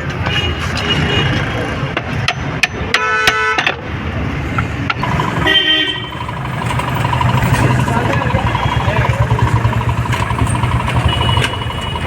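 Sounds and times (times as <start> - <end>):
low street rumble: 3.8 - 12.0
vehicle horn honking: 5.0 - 12.0.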